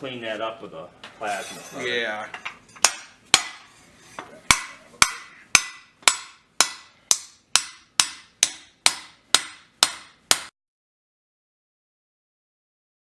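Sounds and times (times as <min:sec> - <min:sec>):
hammer striking steel on anvil: 0:02.4 - 0:03.8, 0:04.4 - 0:10.5.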